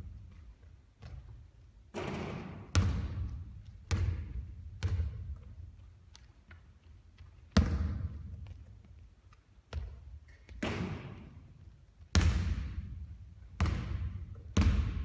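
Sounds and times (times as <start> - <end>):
basketball bouncing on hard surface: 1.0 - 6.6, 7.5 - 8.7, 9.7 - 11.3, 12.1 - 15.0.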